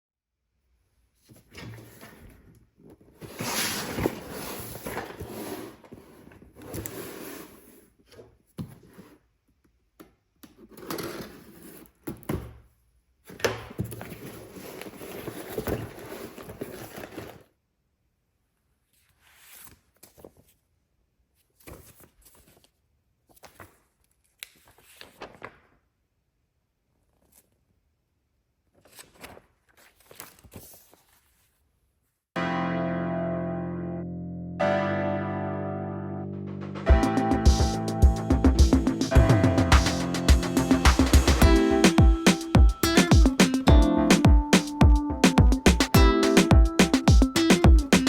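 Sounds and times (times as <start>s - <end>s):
plastic packaging rustling: 13.8s - 17.5s.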